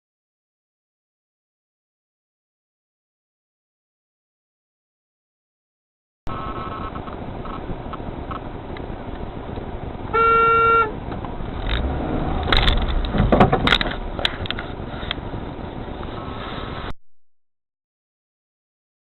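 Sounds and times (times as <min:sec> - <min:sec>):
road noise: 0:06.3 - 0:17.0
car horn blaring: 0:10.1 - 0:11.0.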